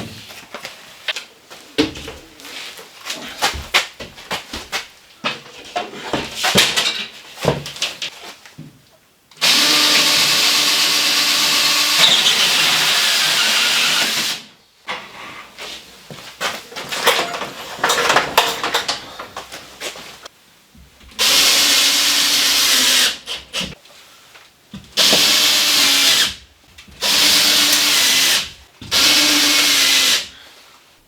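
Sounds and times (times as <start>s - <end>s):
knocking and clattering: 16.4s - 19.9s.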